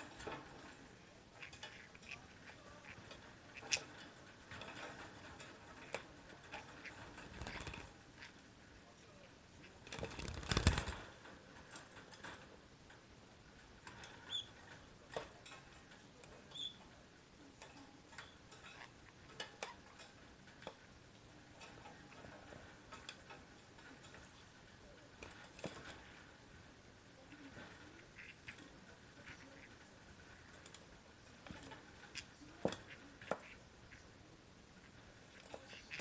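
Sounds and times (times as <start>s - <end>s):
parakeet rustling: 0.0s - 36.0s
soft high parakeet chirps: 14.2s - 14.6s, 16.5s - 16.8s.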